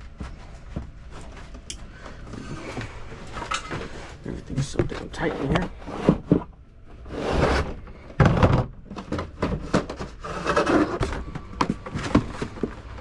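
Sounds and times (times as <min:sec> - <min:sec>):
rustling scrapes: 0:02.3 - 0:06.4, 0:07.0 - 0:08.1, 0:09.6 - 0:13.0.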